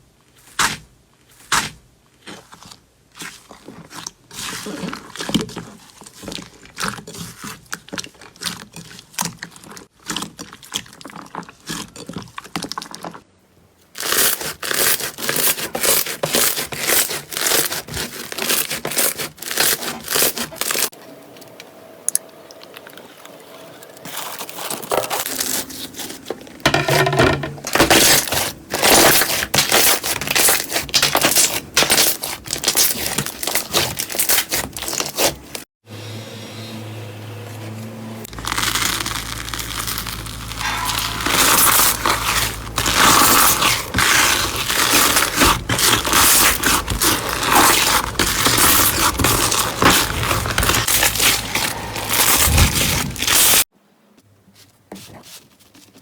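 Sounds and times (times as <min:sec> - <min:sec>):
slime clicking and crackling: 0:27.9 - 0:35.4, 0:38.3 - 0:53.6.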